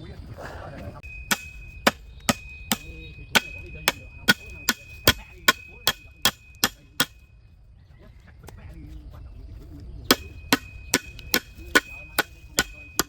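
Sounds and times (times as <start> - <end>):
hand tool striking wood: 1.0 - 7.2, 10.1 - 13.0.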